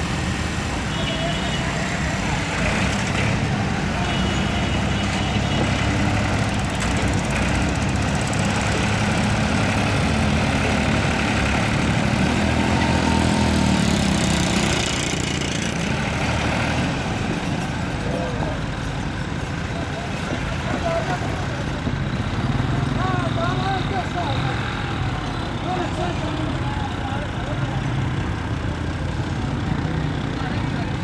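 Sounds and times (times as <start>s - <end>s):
tractor diesel engine running: 1.8s - 31.0s.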